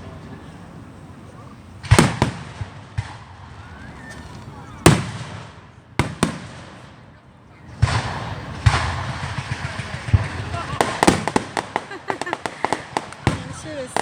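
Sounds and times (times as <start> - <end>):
fireworks booming: 0.0 - 14.0
fireworks crackling pops: 1.8 - 14.0.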